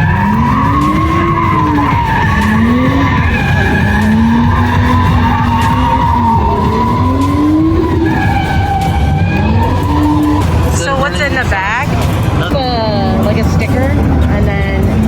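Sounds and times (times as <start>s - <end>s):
tyre squeal: 0.0s - 10.8s
car engine revving: 0.0s - 15.0s.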